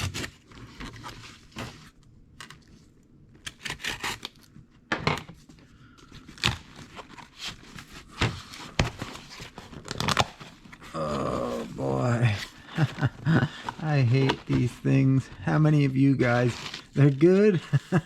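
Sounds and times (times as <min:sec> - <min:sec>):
cardboard and packing rustling: 0:00.0 - 0:18.0
packing tape tearing: 0:03.4 - 0:04.5, 0:08.9 - 0:11.9.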